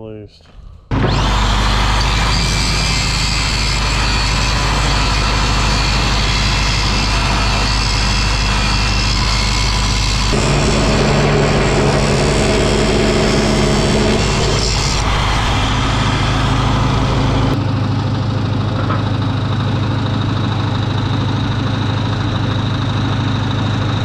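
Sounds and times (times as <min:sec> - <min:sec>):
angle grinder grinding steel: 0:00.9 - 0:17.6.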